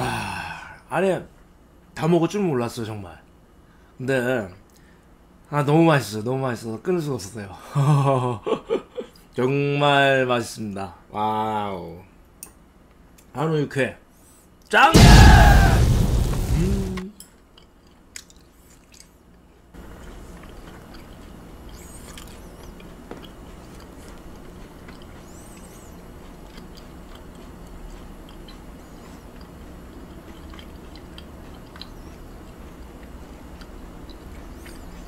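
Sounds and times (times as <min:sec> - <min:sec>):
steady low hum: 0:00.0 - 0:35.0
faint chewing: 0:17.1 - 0:35.0.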